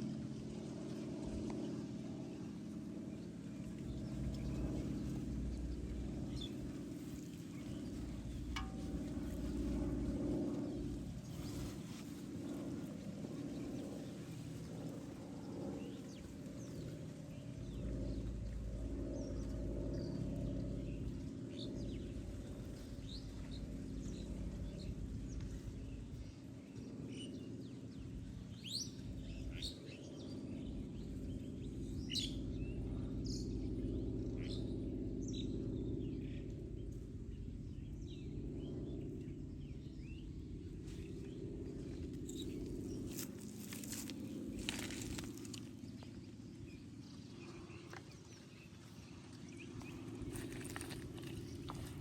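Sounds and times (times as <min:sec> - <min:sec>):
low background rumble: 0:03.1 - 0:26.8, 0:27.6 - 0:52.0
small birds chirping: 0:35.2 - 0:52.0.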